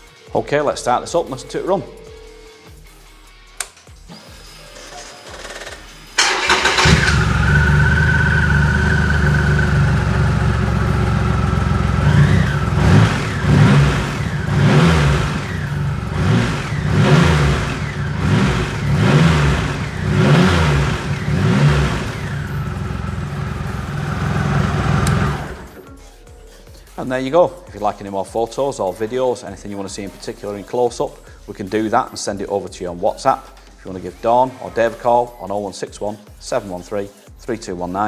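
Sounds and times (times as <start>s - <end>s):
motorcycle engine starting: 3.6s - 26.0s
motorcycle engine idling: 6.2s - 25.9s
motorcycle engine revving: 6.2s - 25.9s.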